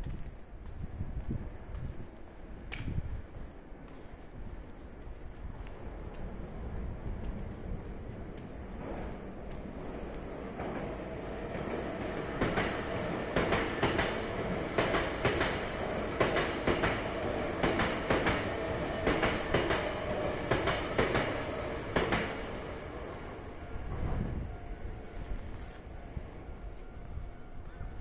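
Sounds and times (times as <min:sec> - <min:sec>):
train wheels clattering over rail joints: 0:10.6 - 0:22.4.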